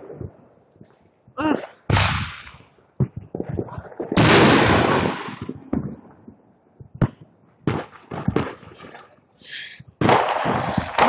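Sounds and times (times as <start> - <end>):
firework cracks: 0.0 - 11.0
fireworks popping: 0.0 - 11.0
loud firework blast: 1.6 - 6.1, 9.9 - 11.0.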